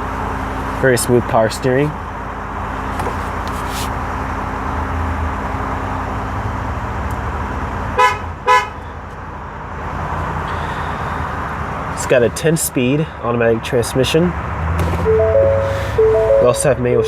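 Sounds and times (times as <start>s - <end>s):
horn toots: 15.0s - 17.0s
truck engine idling hum: 15.0s - 17.0s.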